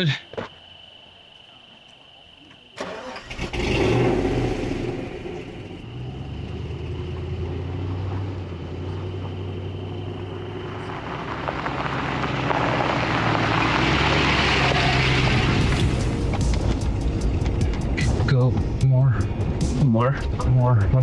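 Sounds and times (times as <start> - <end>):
vehicle engine at low revs: 2.8 - 21.0.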